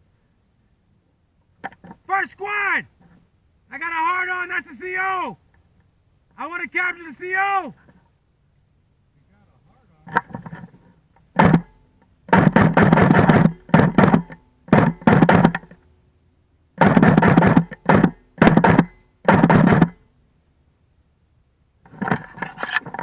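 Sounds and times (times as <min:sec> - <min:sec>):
airsoft guns firing bursts: 0:12.3 - 0:15.6, 0:16.8 - 0:19.9.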